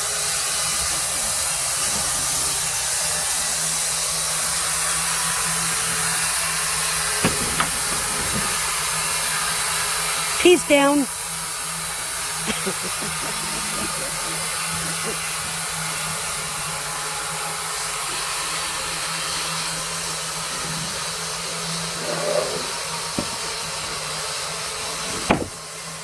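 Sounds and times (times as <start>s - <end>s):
sawmill running: 0.0s - 26.0s
short knock: 25.1s - 25.6s.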